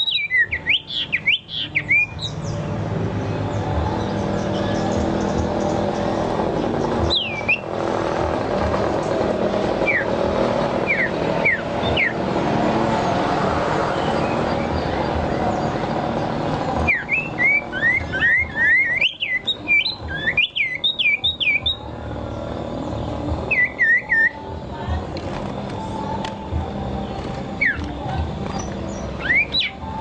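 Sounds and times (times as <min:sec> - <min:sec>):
songbird singing whistled notes: 0:00.0 - 0:08.1, 0:09.1 - 0:24.6, 0:25.7 - 0:30.0
low rumbling noise: 0:02.2 - 0:19.0.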